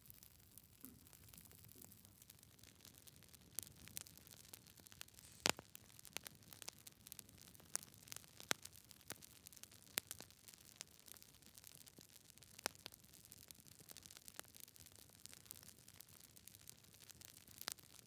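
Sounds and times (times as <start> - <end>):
wood fire crackling: 0.0 - 18.0
fire pops and snaps: 0.7 - 13.0.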